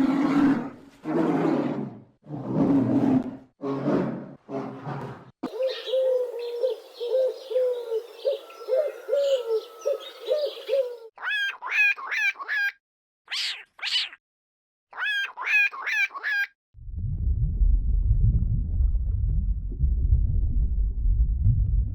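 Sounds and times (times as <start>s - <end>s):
low hooting animal calls: 5.4s - 11.1s.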